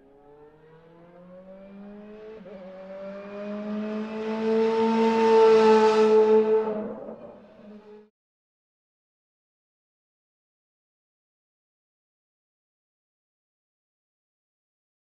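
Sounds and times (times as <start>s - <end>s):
car engine accelerating hard: 0.2s - 8.1s.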